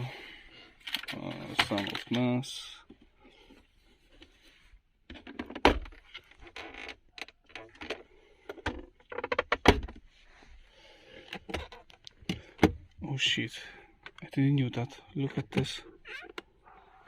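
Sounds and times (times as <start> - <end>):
plastic car interior clicks and rattles: 0.8 - 3.1, 5.0 - 10.1, 11.2 - 13.0, 14.0 - 16.6.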